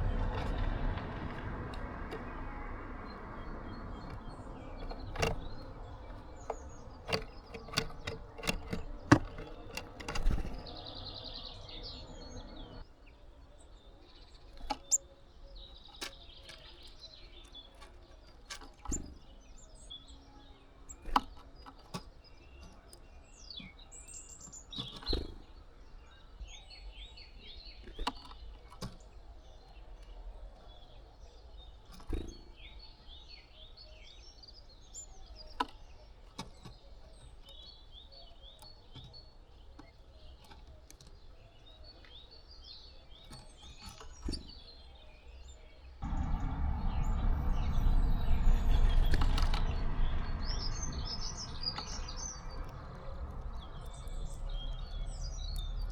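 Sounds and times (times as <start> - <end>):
sharp clicks and knocks: 0.0 - 11.2, 46.0 - 55.9
songbirds chirping: 0.0 - 55.9
loud low rushing noise: 46.0 - 52.6.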